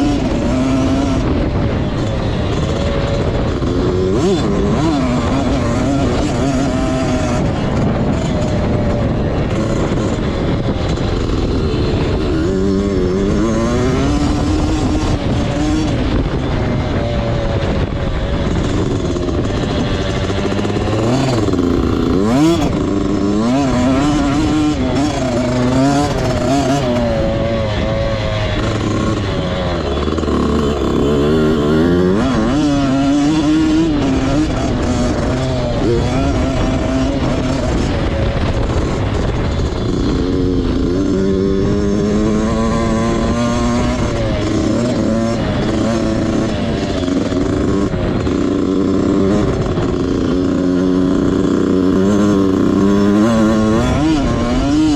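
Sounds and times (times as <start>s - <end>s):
motocross bike engine revving: 0.0s - 54.9s
steady rushing noise: 0.0s - 54.9s.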